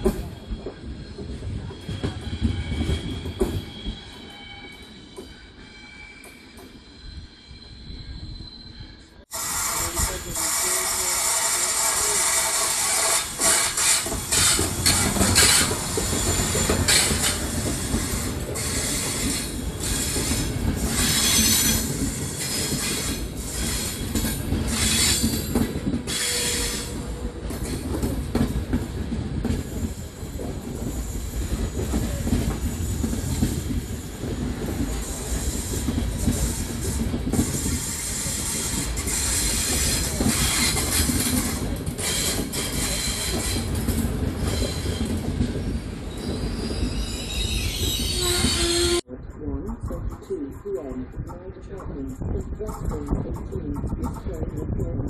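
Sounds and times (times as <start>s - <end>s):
wheels rumbling on rail: 0.0s - 55.0s
high-pitched wheel squeals: 0.2s - 10.7s, 46.1s - 49.0s.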